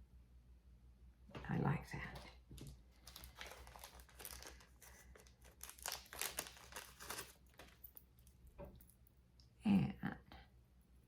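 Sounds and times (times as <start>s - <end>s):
packaging crinkling and rustling: 2.5s - 8.0s.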